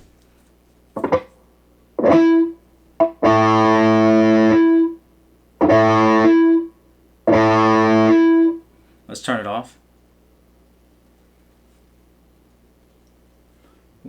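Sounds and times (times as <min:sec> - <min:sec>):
distorted electric guitar chords: 0:01.0 - 0:01.3, 0:02.0 - 0:05.0, 0:05.6 - 0:06.7, 0:07.3 - 0:08.6.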